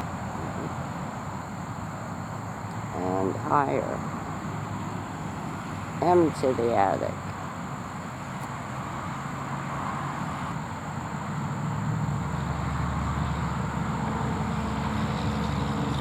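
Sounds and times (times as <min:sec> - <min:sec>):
steady traffic noise: 0:00.0 - 0:16.0
vehicle engine hum: 0:00.0 - 0:16.0.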